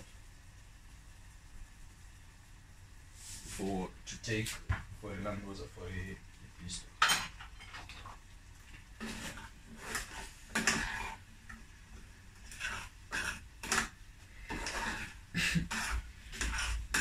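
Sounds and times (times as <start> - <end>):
spoon scraping and knocking pot: 9.0 - 11.6, 12.4 - 17.0.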